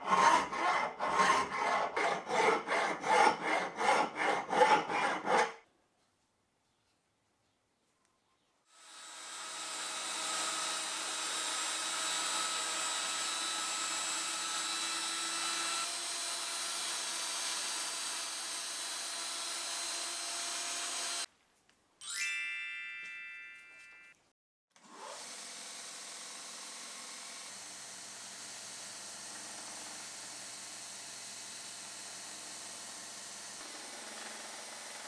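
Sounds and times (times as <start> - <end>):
power tool motor whining: 8.8 - 21.3.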